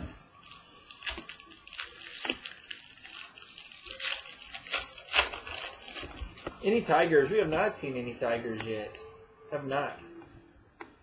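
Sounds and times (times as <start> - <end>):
packaging crinkling and rustling: 0.4 - 6.9.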